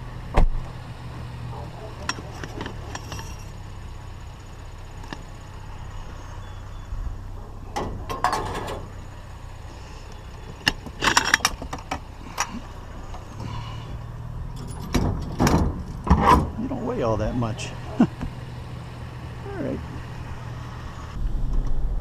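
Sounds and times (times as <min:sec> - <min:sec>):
truck engine idling: 0:00.0 - 0:21.3.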